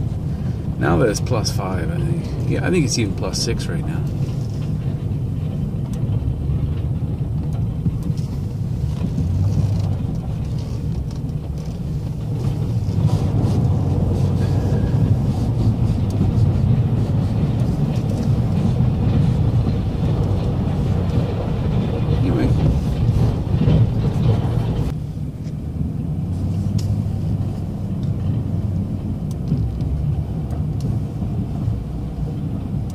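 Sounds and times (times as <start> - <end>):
truck engine running: 0.0 - 32.9
plow blade scraping ice: 8.2 - 24.9.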